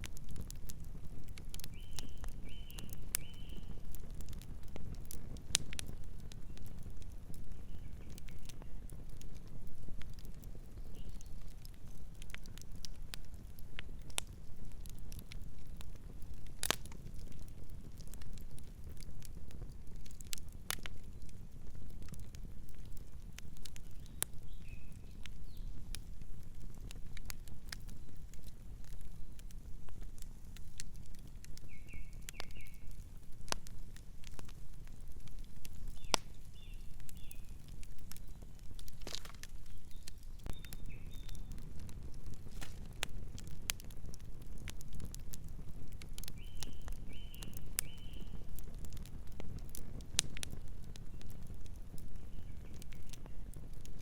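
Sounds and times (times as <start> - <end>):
campfire crackling and popping: 0.0 - 54.0
bird chirping: 39.7 - 41.5.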